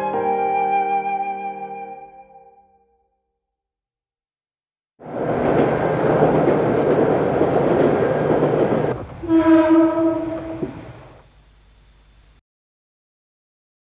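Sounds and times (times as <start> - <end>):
diesel train rumbling on rails: 5.0 - 11.2
train horn: 9.2 - 10.9.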